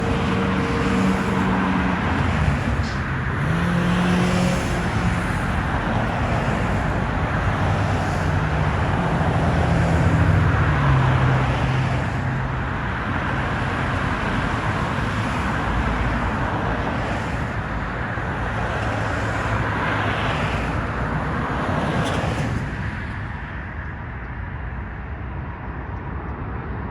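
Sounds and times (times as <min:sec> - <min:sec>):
engine running: 0:00.0 - 0:10.1
traffic noise: 0:00.0 - 0:26.9.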